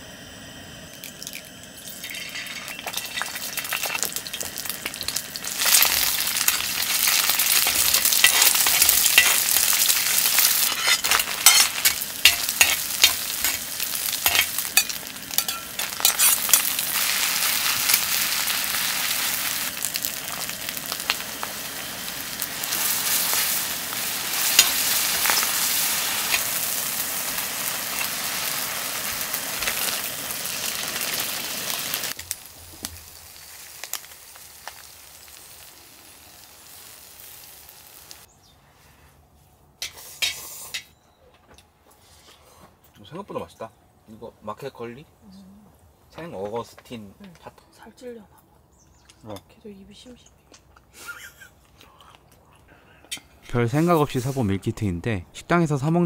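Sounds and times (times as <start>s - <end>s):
noodles sizzling in a hot pan: 0.0s - 38.3s
utensil clicking and scraping pan: 5.7s - 16.8s.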